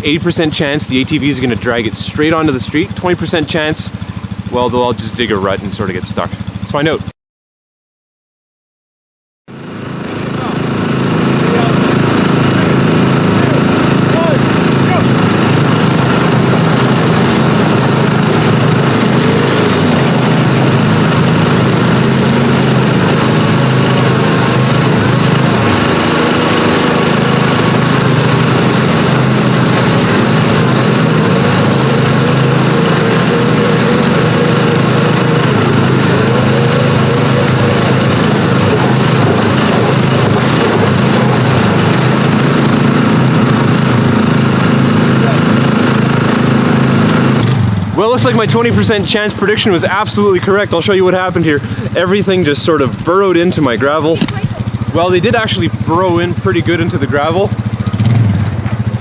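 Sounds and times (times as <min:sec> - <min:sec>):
engines droning under load: 0:00.0 - 0:07.1, 0:09.5 - 0:59.0
wheels digging into gravel: 0:10.3 - 0:50.6.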